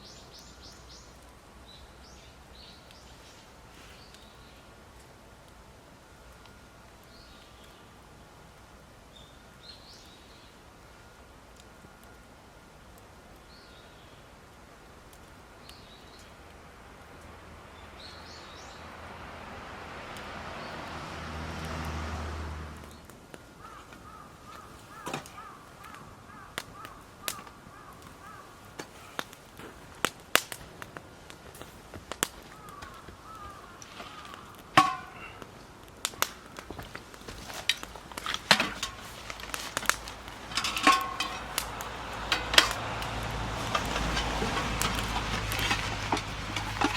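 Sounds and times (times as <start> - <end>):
sharp pops and crackles: 22.8 - 46.9.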